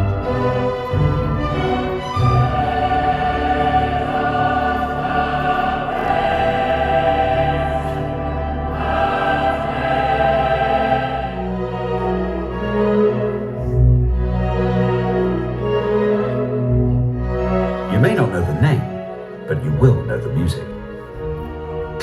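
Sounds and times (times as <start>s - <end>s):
choir singing long held notes: 0.0s - 22.0s.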